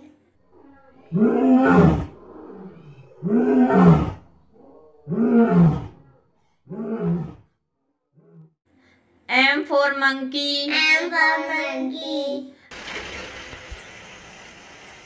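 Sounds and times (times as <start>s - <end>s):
lion roaring: 0.4s - 7.6s.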